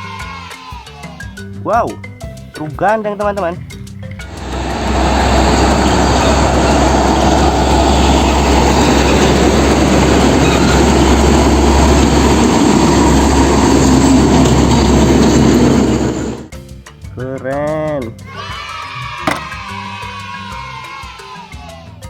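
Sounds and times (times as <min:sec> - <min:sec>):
rumbling vehicle noise: 0:04.0 - 0:16.5.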